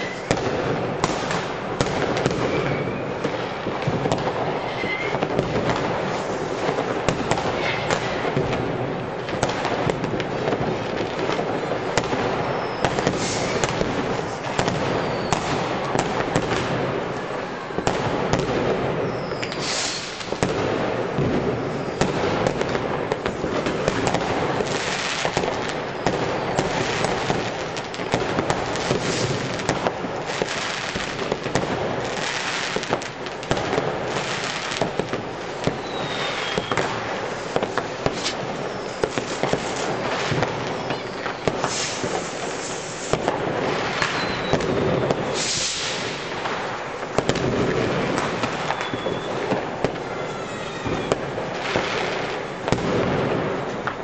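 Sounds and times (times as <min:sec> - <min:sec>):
rocket whistles: 0:00.0 - 0:00.4, 0:02.3 - 0:03.2, 0:04.6 - 0:05.4, 0:12.4 - 0:13.8, 0:14.9 - 0:15.6, 0:19.0 - 0:20.4, 0:35.7 - 0:43.2, 0:43.9 - 0:46.2, 0:48.5 - 0:49.6
fireworks bangs and crackles: 0:00.0 - 0:54.0.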